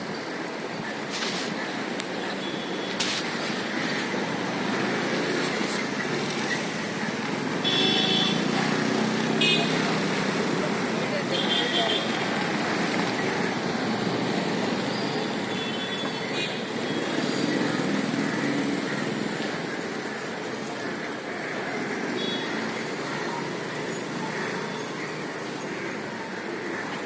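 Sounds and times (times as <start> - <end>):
road traffic noise: 0.0 - 27.0.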